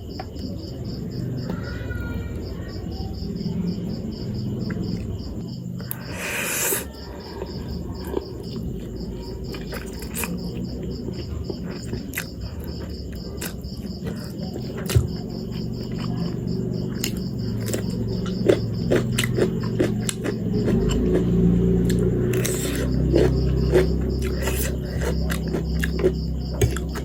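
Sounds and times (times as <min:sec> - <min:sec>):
cricket chirping: 0:00.0 - 0:27.0
chewing and biting clicks: 0:06.8 - 0:27.0.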